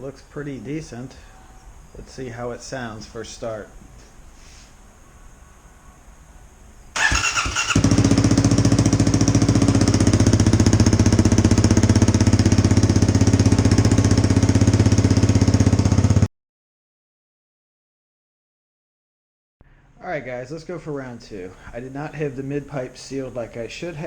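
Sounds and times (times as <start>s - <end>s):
motorcycle engine starter cranking: 7.0s - 12.9s
motorcycle engine idling: 7.0s - 16.3s.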